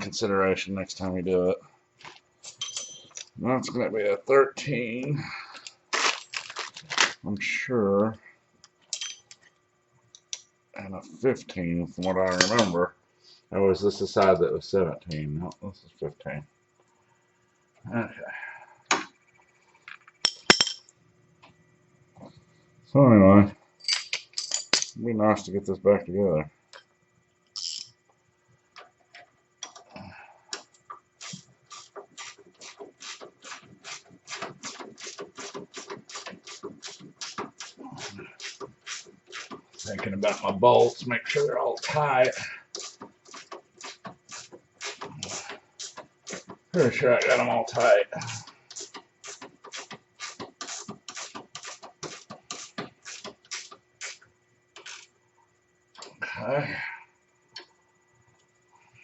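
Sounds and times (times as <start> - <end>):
handling noises: 5.6 - 7.3
ratchet wrench strokes: 27.6 - 27.9, 41.8 - 46.4, 47.3 - 54.2, 54.8 - 55.1
socket ratchet clicking: 27.6 - 27.9.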